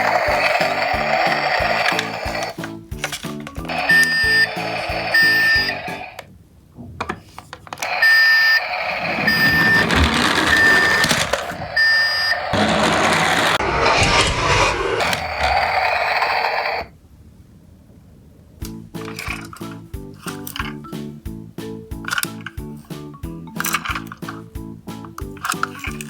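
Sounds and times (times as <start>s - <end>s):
rattling hissy noise: 0.0s - 6.3s
toy electronic high beep: 3.6s - 6.2s, 7.8s - 12.5s.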